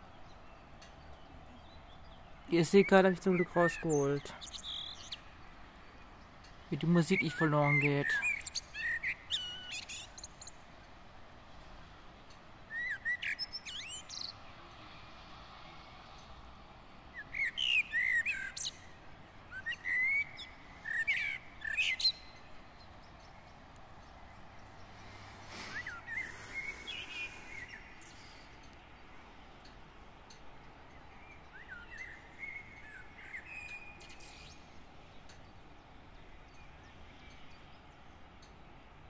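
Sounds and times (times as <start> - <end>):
songbirds chirping: 0.0 - 39.0
faint steady hiss: 18.3 - 39.0.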